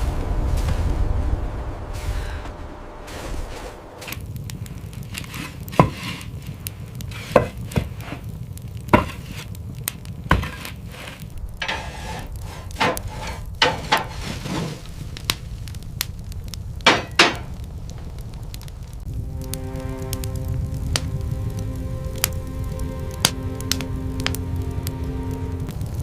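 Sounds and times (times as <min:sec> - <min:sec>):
low rumble: 0:00.0 - 0:26.0
sharp knocks and cracks: 0:04.9 - 0:15.4, 0:16.8 - 0:18.2.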